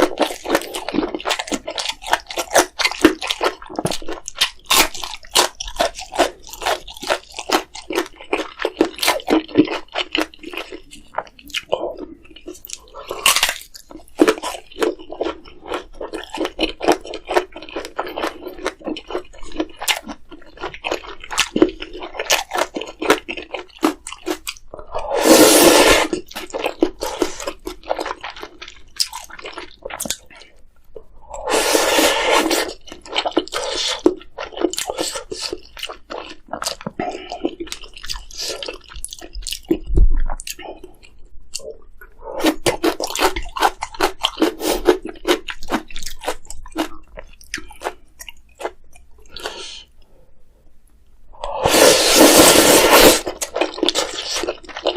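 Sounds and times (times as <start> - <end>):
wet chewing with smacking: 0.0 - 24.7, 32.4 - 49.6
noodle slurps: 25.0 - 26.2, 31.3 - 32.8, 51.4 - 54.5.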